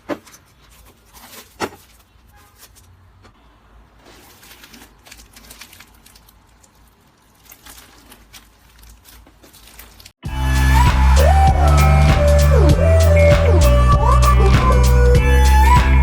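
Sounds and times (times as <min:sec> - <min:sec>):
slime squishing: 0:04.0 - 0:10.2.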